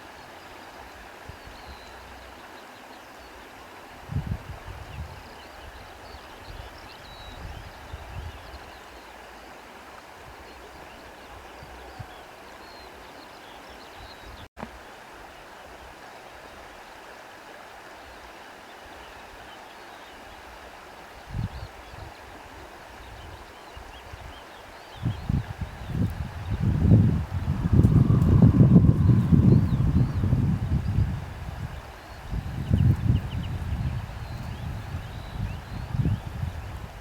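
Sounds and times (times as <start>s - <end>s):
wind blowing through trees: 0.0s - 37.0s
wind gusts buffeting microphone: 4.0s - 6.7s, 25.0s - 37.0s.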